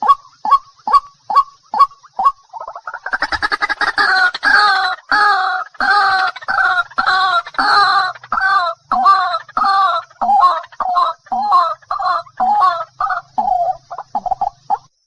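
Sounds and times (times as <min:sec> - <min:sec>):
water hen calling: 0:00.0 - 0:14.9.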